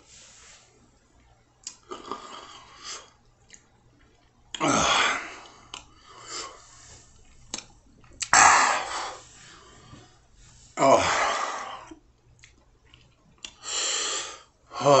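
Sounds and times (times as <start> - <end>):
man breathing hard: 8.4 - 12.0, 13.6 - 15.0
loud hissing breaths: 13.6 - 14.6.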